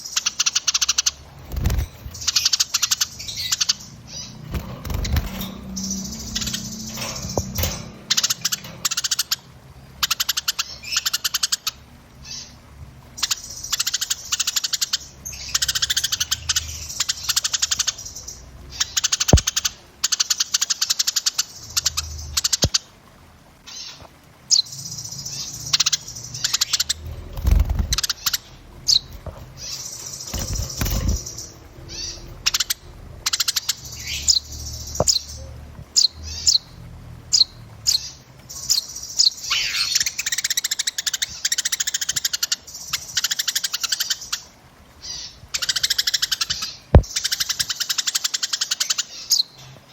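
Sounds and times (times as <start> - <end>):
small songbirds chirping: 0.0 - 49.9.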